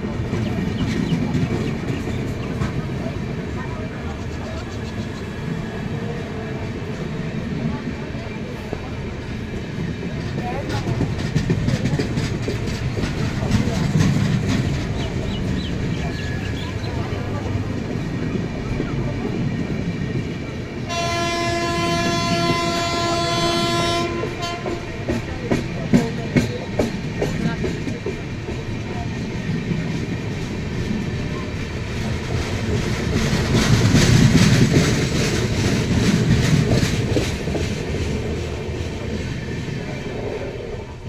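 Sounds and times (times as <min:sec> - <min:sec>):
wheels clattering over rail joints: 0:09.7 - 0:19.8
train horn: 0:20.8 - 0:25.2.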